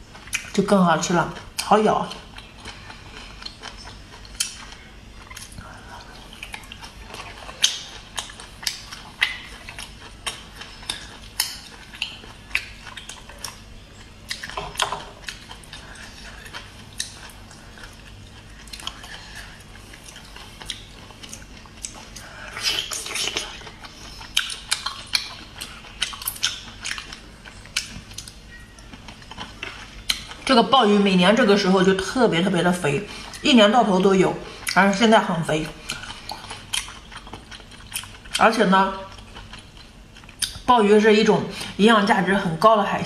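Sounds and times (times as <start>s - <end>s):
wet chewing clicks and smacks: 1.5s - 30.5s, 35.8s - 40.7s.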